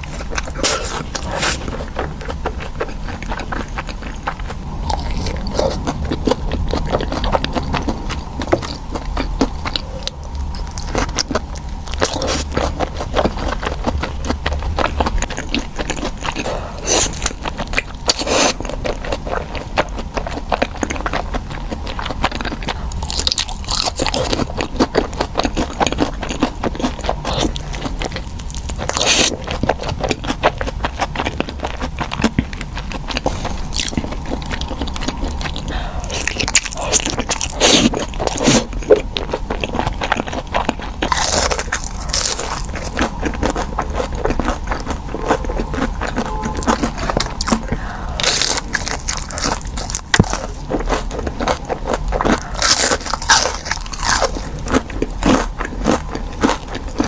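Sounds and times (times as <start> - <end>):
crunching and chewing food: 0.0 - 57.0.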